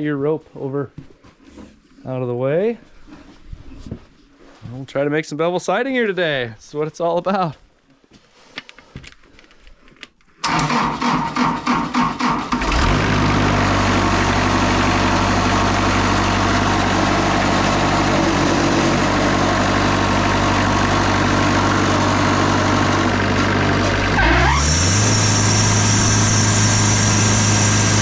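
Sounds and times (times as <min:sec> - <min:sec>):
engine cranking and running: 0:10.4 - 0:28.0.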